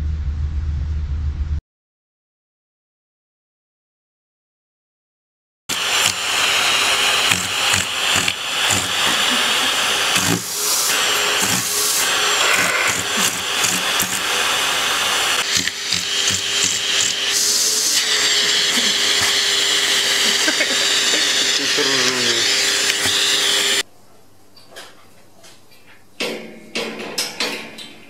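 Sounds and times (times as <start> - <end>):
vacuum cleaner running: 5.7 - 23.8.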